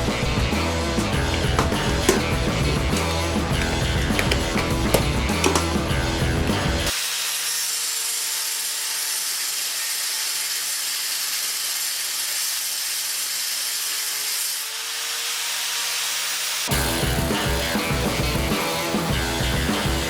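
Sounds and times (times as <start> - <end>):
rock music: 0.0 - 6.9, 16.7 - 20.0
angle grinder grinding metal: 0.0 - 20.0.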